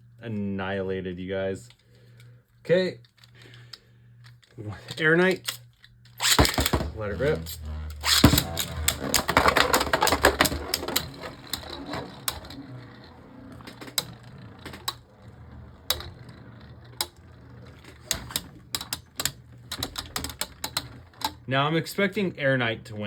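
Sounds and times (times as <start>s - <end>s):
spinning tops whirring: 4.6s - 22.1s
sharp clicks of tops hitting: 6.2s - 12.6s
spinning tops clacking: 6.2s - 21.4s.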